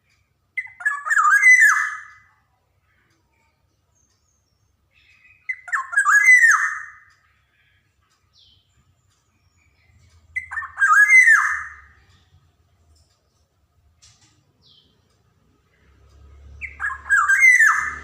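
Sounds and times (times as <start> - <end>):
bird singing fluting phrases: 0.6 - 2.3, 5.0 - 12.4, 16.4 - 18.0.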